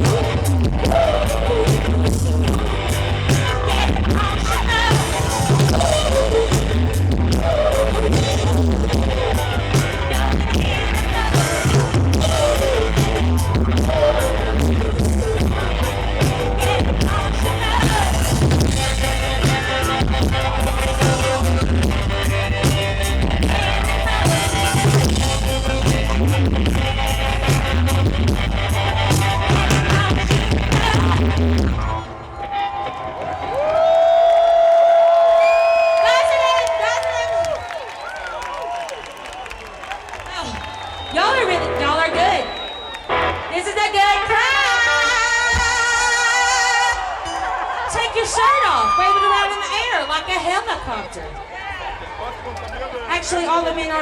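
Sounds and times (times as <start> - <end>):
woman singing: 0.0 - 21.6, 29.4 - 31.6, 43.6 - 47.1
bass and kick drum pulsing: 0.0 - 32.0
live rock band playing: 0.0 - 32.2, 41.2 - 46.9.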